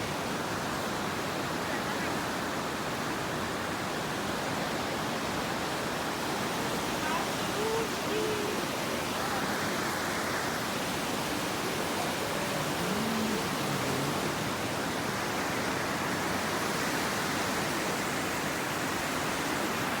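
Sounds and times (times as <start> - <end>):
waterfall rushing: 6.2 - 20.0.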